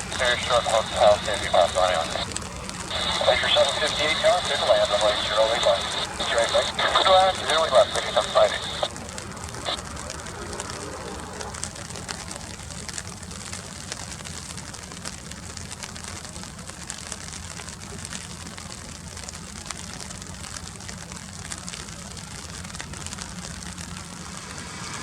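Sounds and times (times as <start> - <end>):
steady low rumble: 0.0 - 13.2
rain hissing and ticking: 0.0 - 25.0.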